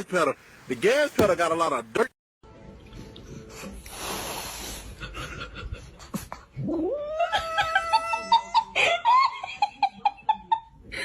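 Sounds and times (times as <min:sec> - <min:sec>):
faint knocks: 0:00.7 - 0:01.8.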